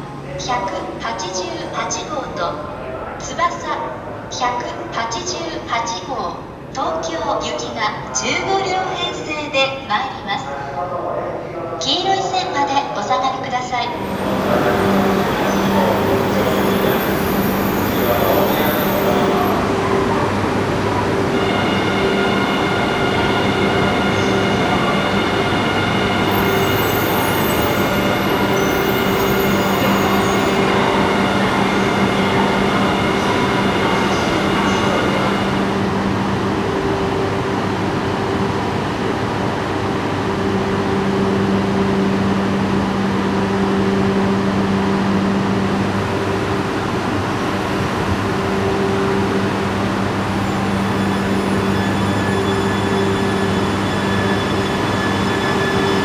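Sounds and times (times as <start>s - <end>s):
train pulling into platform: 0.0s - 56.0s
high whining tones: 13.9s - 36.7s.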